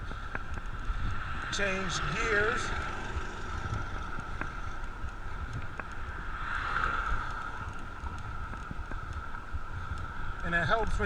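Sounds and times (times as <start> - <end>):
bicycle riding noise on road: 0.0 - 11.0
wind rumbling on microphone: 0.0 - 11.0
faint clicks: 2.8 - 10.5.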